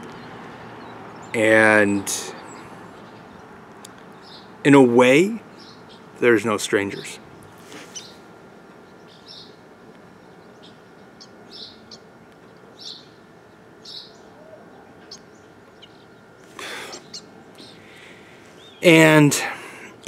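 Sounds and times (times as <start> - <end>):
small bird chirping: 2.4 - 4.6, 5.5 - 6.2, 6.9 - 18.9
breathy puff of air: 16.5 - 17.1, 17.7 - 18.6.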